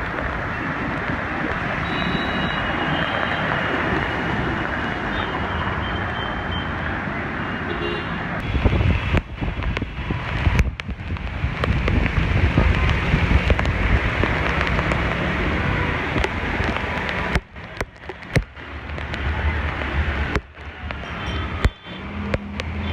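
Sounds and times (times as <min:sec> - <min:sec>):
heavy rain: 0:00.0 - 0:22.9
traffic on a flooded street: 0:00.0 - 0:22.9
wind buffeting microphone: 0:08.4 - 0:22.8.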